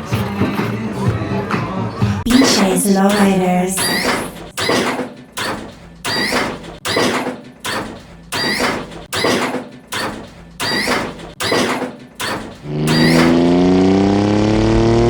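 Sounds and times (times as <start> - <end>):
suspension squeaking: 3.8 - 13.6.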